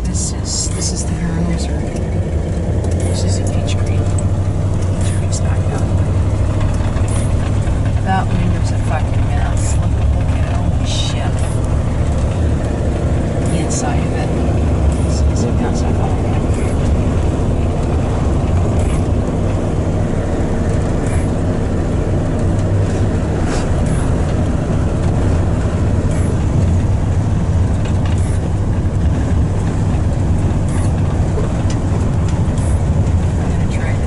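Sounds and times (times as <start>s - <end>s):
truck engine and road rumble: 0.0s - 34.0s.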